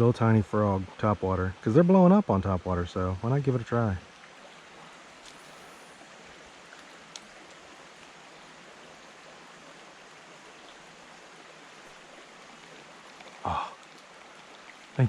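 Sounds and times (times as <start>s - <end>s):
river water rushing: 4.0s - 15.0s.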